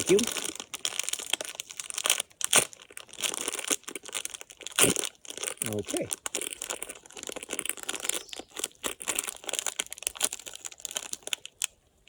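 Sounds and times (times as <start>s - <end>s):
plastic food packet crinkling: 0.0s - 12.0s.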